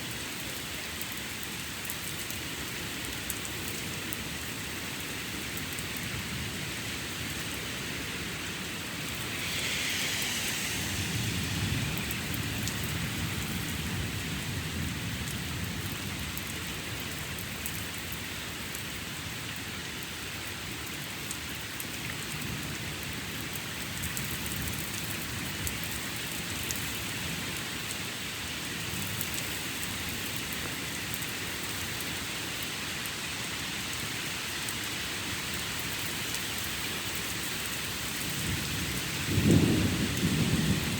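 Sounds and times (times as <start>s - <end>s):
steady rain: 0.0s - 40.9s
rolling thunder: 8.6s - 16.3s, 38.4s - 40.9s.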